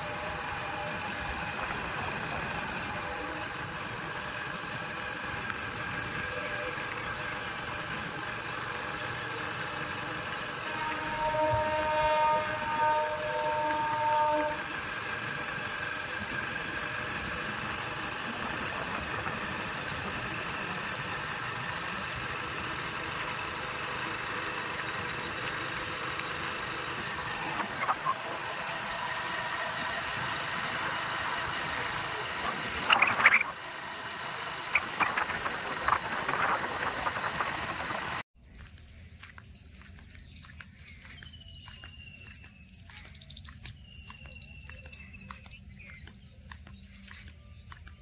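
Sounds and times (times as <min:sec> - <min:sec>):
train rumbling past: 0:00.0 - 0:38.2.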